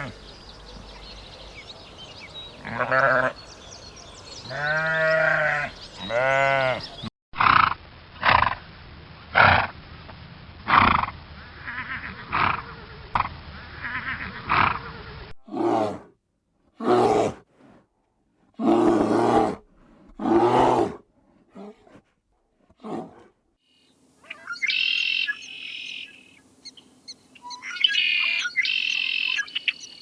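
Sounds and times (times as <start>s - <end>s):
livestock bleating: 2.6s - 3.4s, 4.4s - 7.0s, 11.6s - 12.4s, 13.8s - 14.6s.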